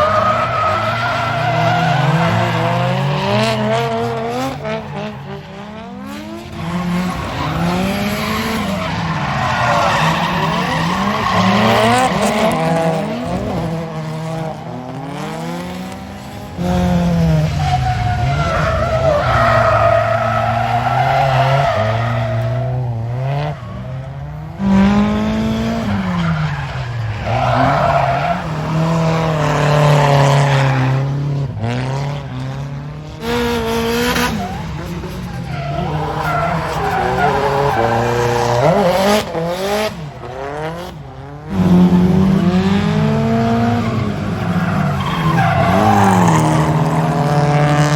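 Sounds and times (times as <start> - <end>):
car engines revving: 0.0 - 47.9
tyres squealing: 43.8 - 47.3.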